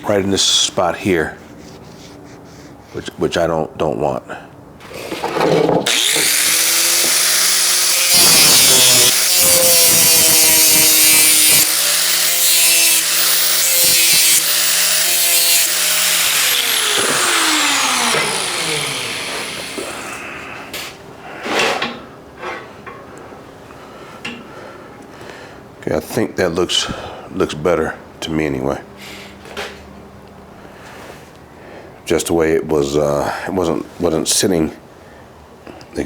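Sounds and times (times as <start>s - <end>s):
angle grinder grinding steel: 4.8s - 20.3s.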